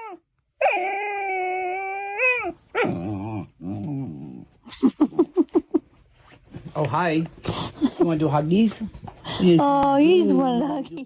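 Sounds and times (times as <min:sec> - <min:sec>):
dog yipping: 0:00.0 - 0:03.1
dog howling: 0:00.0 - 0:04.4.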